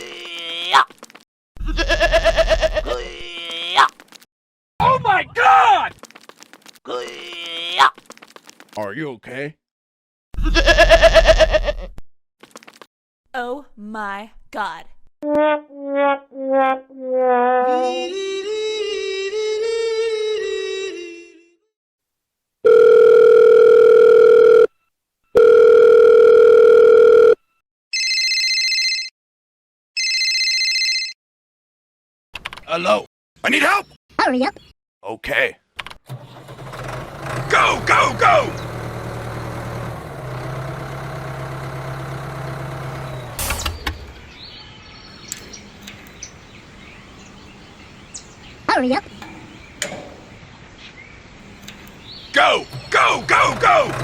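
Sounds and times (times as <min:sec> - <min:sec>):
phone ringback tones: 0:22.6 - 0:27.4, 0:28.0 - 0:29.1, 0:30.0 - 0:31.2
buzzing electronic phone ring: 0:22.7 - 0:24.7, 0:25.4 - 0:27.4, 0:30.0 - 0:31.2
small tractor motor running: 0:36.1 - 0:44.4, 0:51.5 - 0:54.0.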